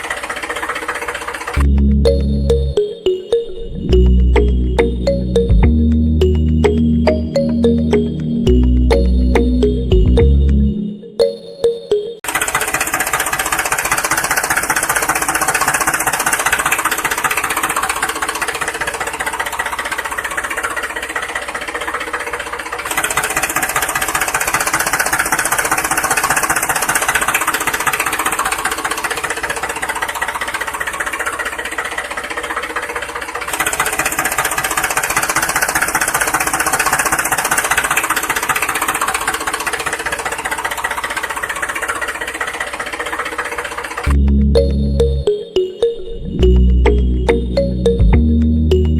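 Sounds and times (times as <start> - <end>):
mechanical clatter of running engine: 0.0 - 2.3, 12.2 - 44.7.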